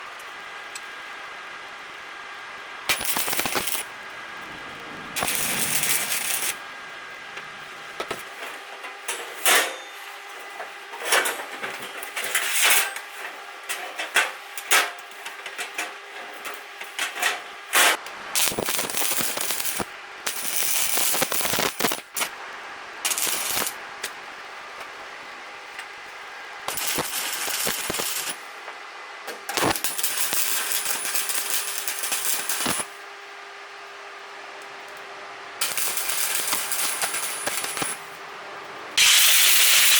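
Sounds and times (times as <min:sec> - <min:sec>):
welding arc crackling: 0:02.9 - 0:08.4, 0:18.1 - 0:22.4, 0:23.1 - 0:24.1, 0:26.7 - 0:28.5, 0:29.6 - 0:32.9, 0:35.6 - 0:38.1, 0:39.0 - 0:39.9.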